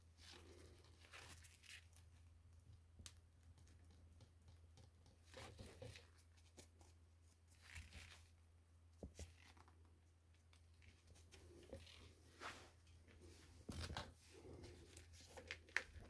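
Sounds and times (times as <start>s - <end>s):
rustling: 0.1s - 2.0s.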